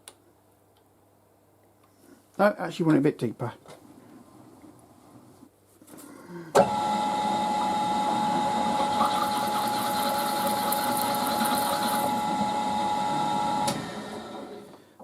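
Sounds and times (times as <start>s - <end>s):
milling machine whine: 6.6s - 14.8s.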